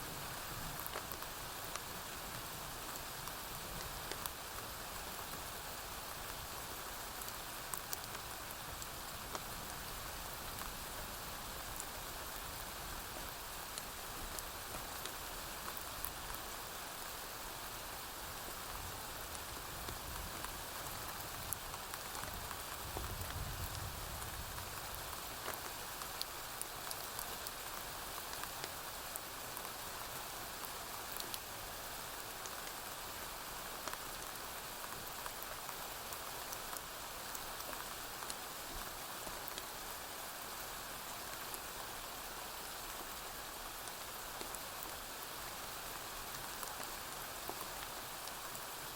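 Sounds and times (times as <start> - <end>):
rain on a roof: 0.0 - 48.9.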